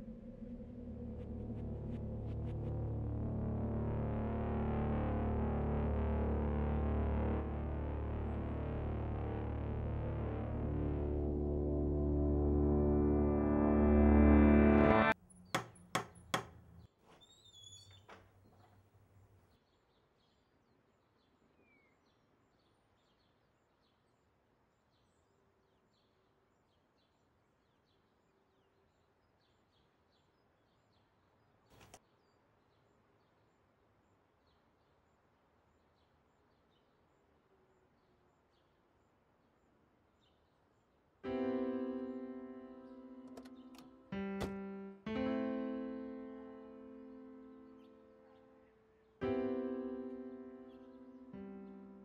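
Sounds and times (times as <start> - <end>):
piano chord ringing: 7.2 - 15.2, 41.3 - 52.0.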